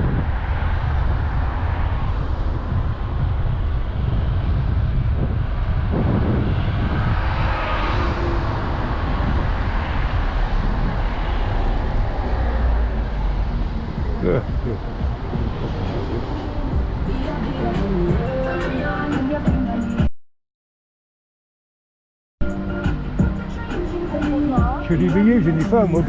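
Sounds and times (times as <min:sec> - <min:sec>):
road traffic noise: 0:00.0 - 0:20.0, 0:22.4 - 0:26.0
wind rumble on microphone: 0:00.0 - 0:20.1.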